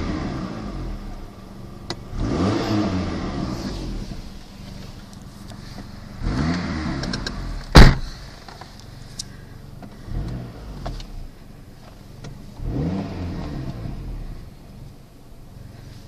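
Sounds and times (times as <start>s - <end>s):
car engine revving: 0.0s - 8.0s, 9.7s - 16.0s
loud sharp thump: 7.7s - 8.2s.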